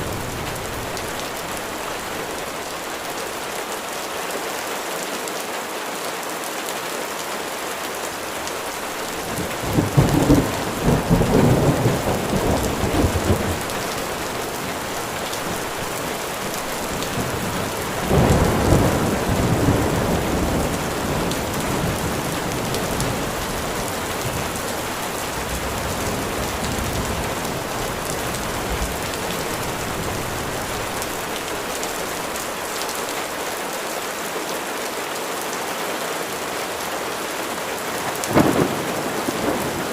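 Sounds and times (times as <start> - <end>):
steady rain falling: 0.0 - 39.9
thunder rumbling: 9.0 - 32.3, 38.3 - 39.9.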